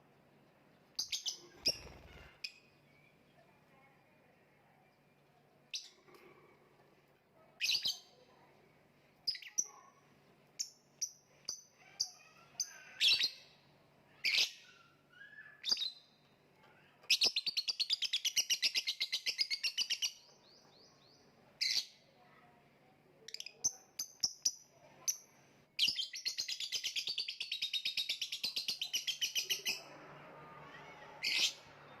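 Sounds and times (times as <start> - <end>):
lovebird chirps: 1.0 - 3.5, 7.6 - 8.2, 23.3 - 29.8.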